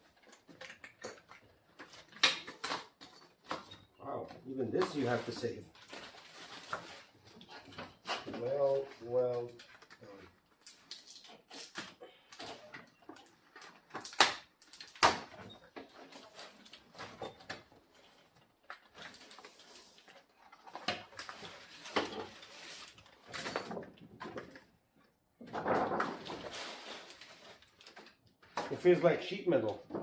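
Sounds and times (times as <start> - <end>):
fabric and packaging rustling: 4.4 - 11.8, 15.7 - 23.6, 25.5 - 28.6.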